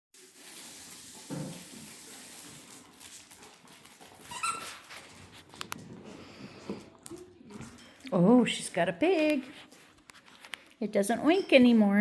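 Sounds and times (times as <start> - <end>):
dog whining: 4.3 - 4.8.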